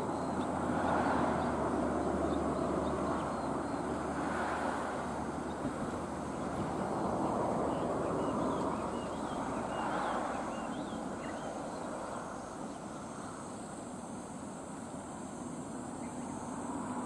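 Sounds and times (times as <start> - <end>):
train rushing rumble: 4.1 - 10.3.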